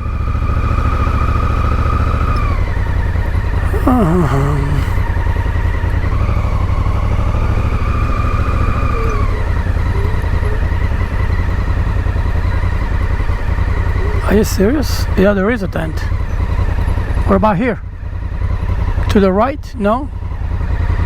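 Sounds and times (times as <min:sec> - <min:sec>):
motorcycle engine droning: 0:00.0 - 0:21.0
person speaking: 0:03.6 - 0:05.0, 0:14.0 - 0:16.0.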